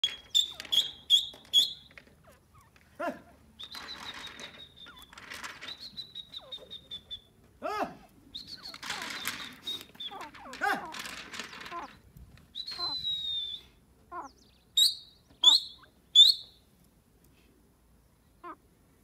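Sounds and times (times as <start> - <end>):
birds chirping and trilling: 0.0 - 3.0, 3.6 - 7.3, 8.4 - 13.1, 14.1 - 16.6
lower rising and falling bird calls: 0.0 - 7.4, 8.3 - 16.6.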